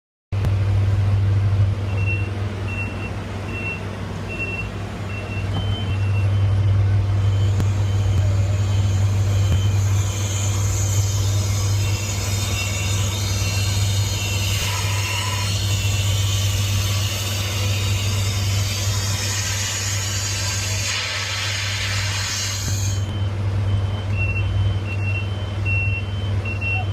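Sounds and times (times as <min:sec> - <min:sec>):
crane engine running: 0:00.4 - 0:26.9
warning alarm beeping: 0:01.9 - 0:18.8, 0:22.0 - 0:26.9
hiss: 0:16.8 - 0:23.0.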